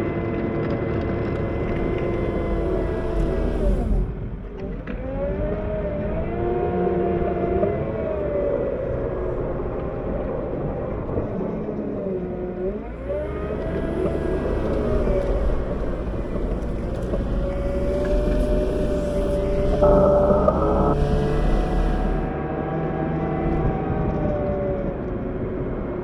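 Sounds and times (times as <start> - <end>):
loader diesel engine under load: 0.1 - 10.2, 12.4 - 22.5.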